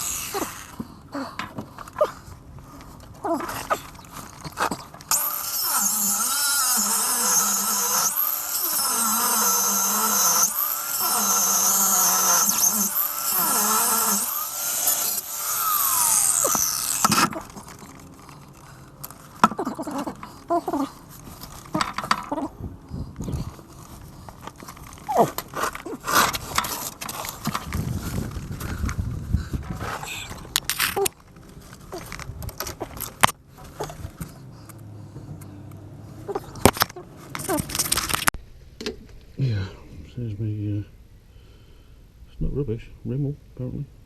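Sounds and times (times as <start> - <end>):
angle grinder cutting steel: 0.0 - 0.9, 3.4 - 22.5, 23.3 - 28.0.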